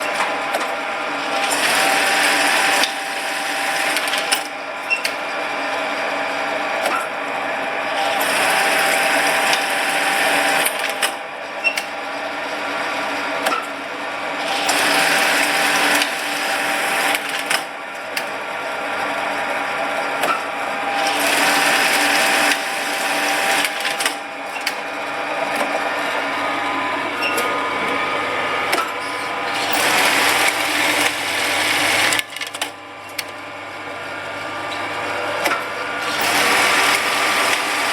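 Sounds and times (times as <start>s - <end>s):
sewing machine motor hum: 0.3s - 4.6s, 5.2s - 37.9s
sewing machine stitching: 0.5s - 5.2s, 14.4s - 18.3s, 21.0s - 24.8s, 28.7s - 33.3s, 35.4s - 37.9s.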